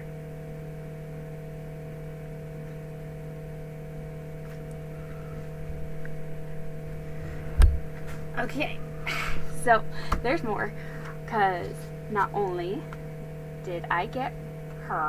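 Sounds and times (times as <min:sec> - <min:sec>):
electrical hum: 0:00.0 - 0:15.0
handling rumble: 0:03.9 - 0:15.0.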